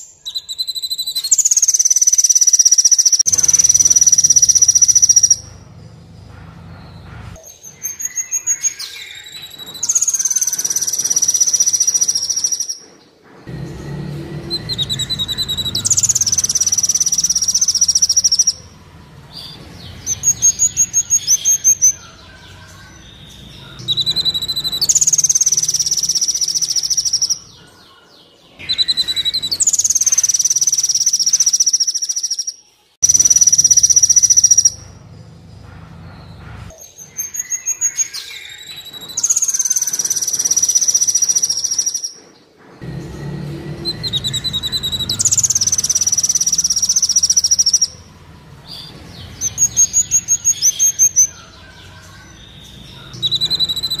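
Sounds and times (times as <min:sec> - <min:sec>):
sunbird song with high trill: 0:00.0 - 0:54.0
low background hum: 0:00.1 - 0:32.4, 0:33.0 - 0:54.0.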